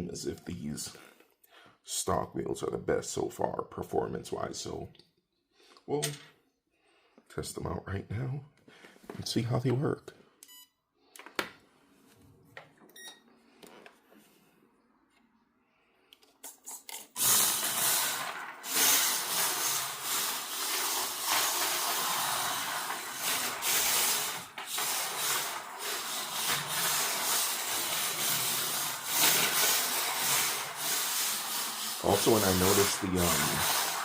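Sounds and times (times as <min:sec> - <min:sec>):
toy car tyres sliding on floor: 0:17.0 - 0:34.0.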